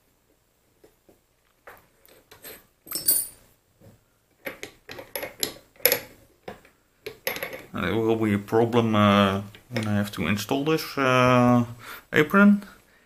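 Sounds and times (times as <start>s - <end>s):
small metal parts clinking: 2.9s - 3.4s.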